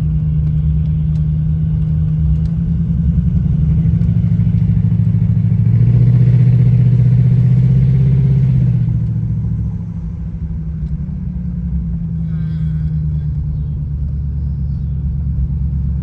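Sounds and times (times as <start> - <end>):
car engine running: 0.0 - 16.0
road noise inside car: 0.0 - 16.0.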